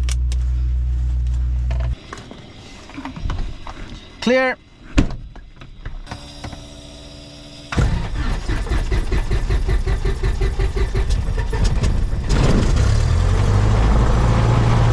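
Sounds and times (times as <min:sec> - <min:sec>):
starter cranking engine: 0:07.7 - 0:13.1.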